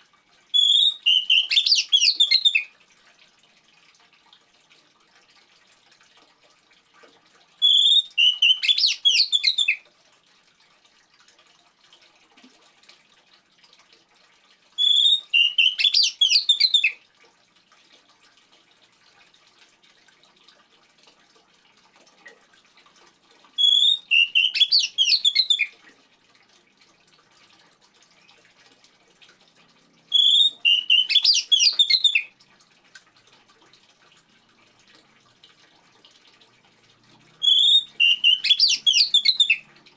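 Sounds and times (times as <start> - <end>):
faint trickling water: 0.0 - 39.9
bird singing whistled phrases: 0.6 - 2.7, 7.6 - 9.8, 14.8 - 17.0, 23.6 - 25.7, 30.1 - 32.3, 37.4 - 39.7.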